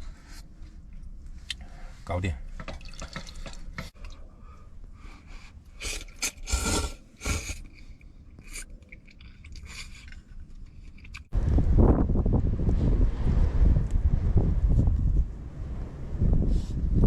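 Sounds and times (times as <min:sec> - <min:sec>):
wind buffeting microphone: 0:11.3 - 0:17.0.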